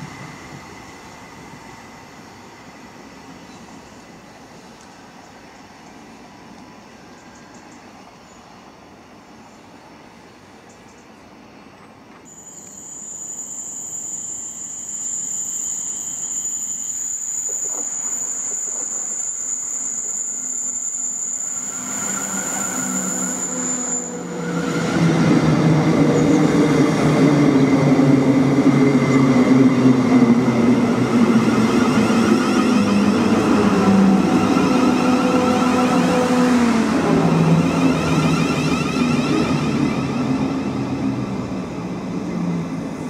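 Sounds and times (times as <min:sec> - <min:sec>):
electric train passing: 0:00.0 - 0:43.0
steady high whine: 0:21.0 - 0:36.0.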